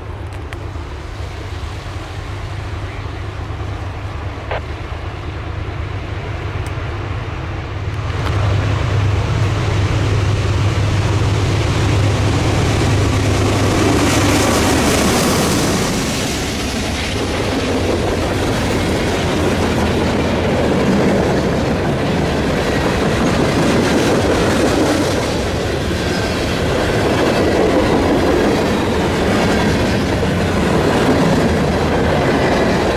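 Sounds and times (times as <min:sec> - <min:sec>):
diesel locomotive engine rumble: 0:00.0 - 0:32.9
wheel and rail noise: 0:00.0 - 0:32.9.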